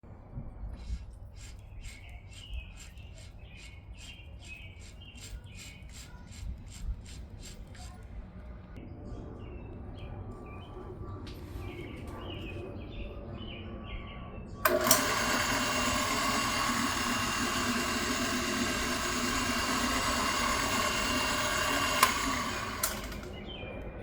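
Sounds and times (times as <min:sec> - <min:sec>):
bird chirping: 0:00.7 - 0:08.0.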